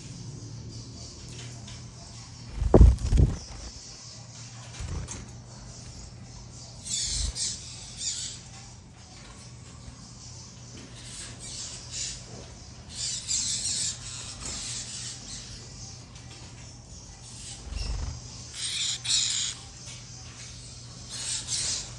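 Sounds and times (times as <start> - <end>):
birds squawking harshly: 2.5 - 3.9, 17.3 - 19.9.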